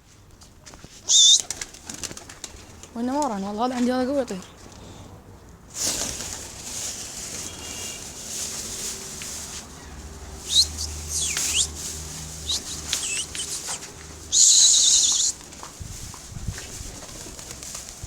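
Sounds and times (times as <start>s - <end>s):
pigeon wings flapping: 0.7s - 3.4s, 5.8s - 9.7s, 10.5s - 18.0s.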